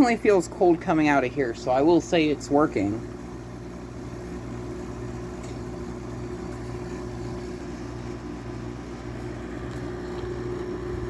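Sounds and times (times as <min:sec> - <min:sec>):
window air conditioner humming: 0:00.0 - 0:11.0.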